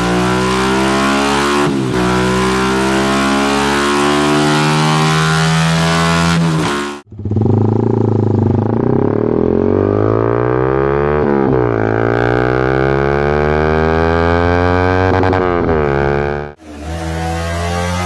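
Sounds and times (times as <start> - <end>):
motorcycle engine accelerating: 0.0 - 18.0
motorcycle engine holding steady note: 7.0 - 9.5.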